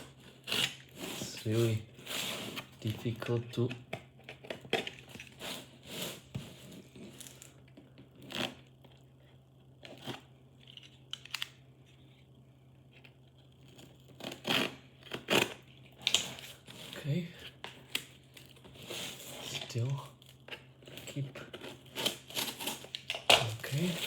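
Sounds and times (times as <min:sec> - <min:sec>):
packaging tearing and crinkling: 0:21.0 - 0:24.0.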